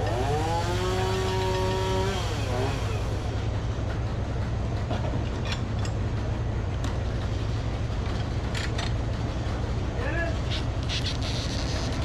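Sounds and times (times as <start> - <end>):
sawmill engine drone: 0.0 - 12.0.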